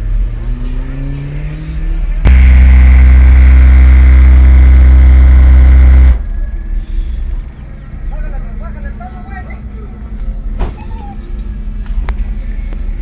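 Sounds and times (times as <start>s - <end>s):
sound rising in pitch: 0.9s - 6.2s
loud low bass tone: 2.2s - 6.4s.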